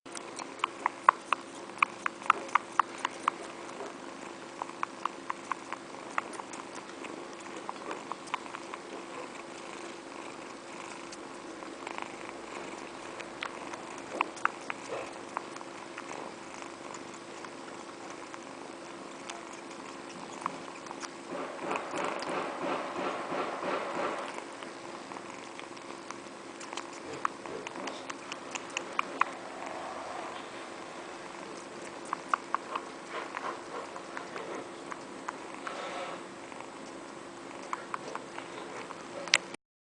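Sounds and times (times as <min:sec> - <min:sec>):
small sharp clicks and ticks: 0:00.1 - 0:11.2, 0:11.9 - 0:18.4, 0:25.4 - 0:29.4, 0:31.5 - 0:35.7, 0:36.6 - 0:39.6
cat gnawing on finger: 0:00.1 - 0:39.6.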